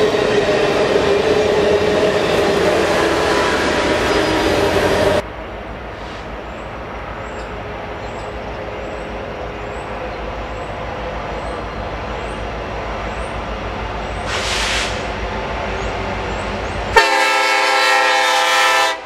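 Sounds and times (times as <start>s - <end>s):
diesel train rumble: 0.0s - 19.0s.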